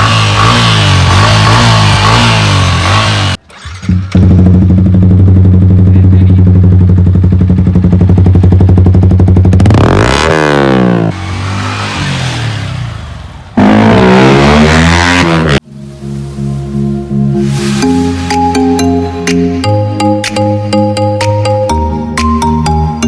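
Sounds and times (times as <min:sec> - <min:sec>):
motorcycle engine revving: 0:00.0 - 0:15.6.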